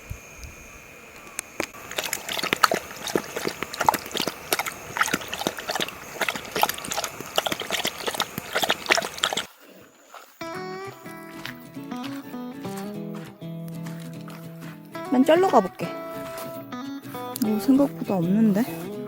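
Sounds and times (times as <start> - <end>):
dog eating noisily: 1.2 - 16.6
gentle music: 10.4 - 19.0.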